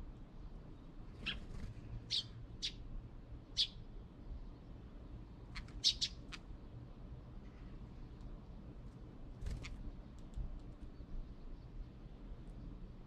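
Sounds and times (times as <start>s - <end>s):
small birds chirping: 0.8s - 2.8s, 3.5s - 3.8s, 5.5s - 6.4s.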